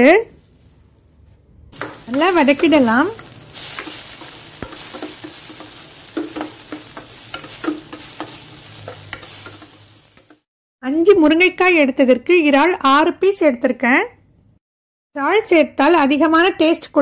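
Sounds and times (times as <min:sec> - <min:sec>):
vegetables sizzling in hot oil: 0:00.0 - 0:01.1, 0:01.7 - 0:10.5
spatula scraping and tapping pan: 0:01.8 - 0:10.5.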